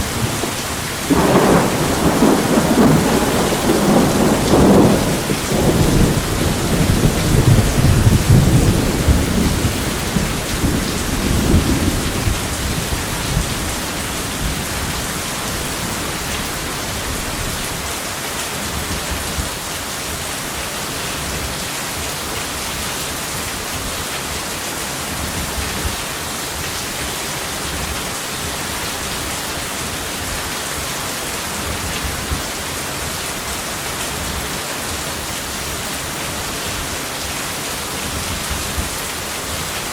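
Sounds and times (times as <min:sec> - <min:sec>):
rolling thunder: 0:00.0 - 0:17.6
heavy rain: 0:00.0 - 0:39.9.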